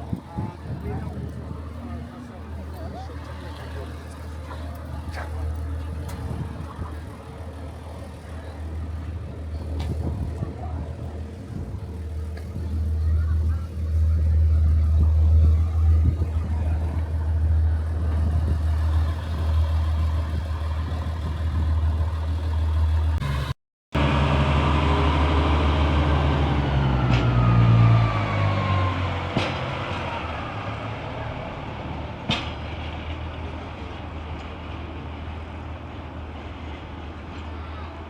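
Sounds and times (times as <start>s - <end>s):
steady low rumble: 0.0s - 23.2s
engine passing by: 0.0s - 38.0s.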